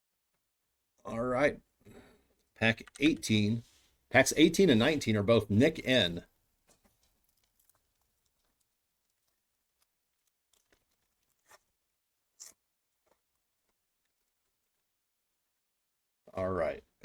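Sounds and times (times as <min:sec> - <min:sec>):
wrapper crinkling: 0:06.7 - 0:14.8
wrapper ripping: 0:07.2 - 0:12.6.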